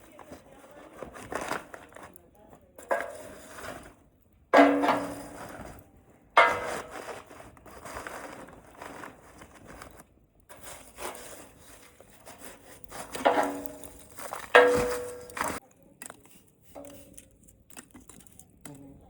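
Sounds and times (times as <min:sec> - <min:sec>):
campfire crackling: 0:09.9 - 0:19.0.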